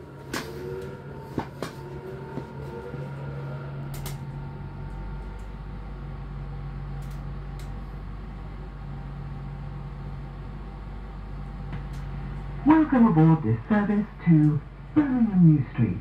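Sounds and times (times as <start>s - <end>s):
deep low rumble: 0.0s - 16.0s
train carriage hum: 0.0s - 16.0s.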